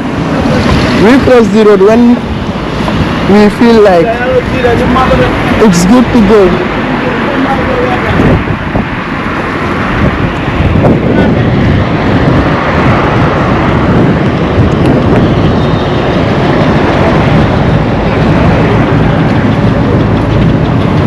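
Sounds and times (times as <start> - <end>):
road traffic rumble: 0.0 - 21.0
wind buffeting microphone: 0.0 - 21.0.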